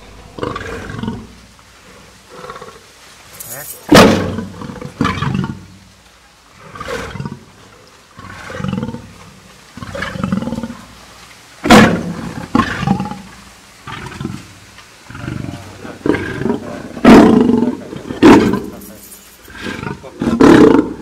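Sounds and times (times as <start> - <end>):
lion growling: 0.0 - 2.8, 15.1 - 21.0.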